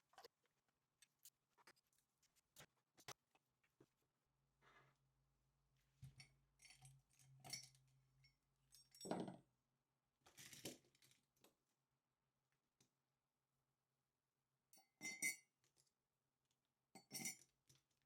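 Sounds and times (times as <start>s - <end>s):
faint clinks and rustles: 6.0s - 9.3s, 17.0s - 17.9s.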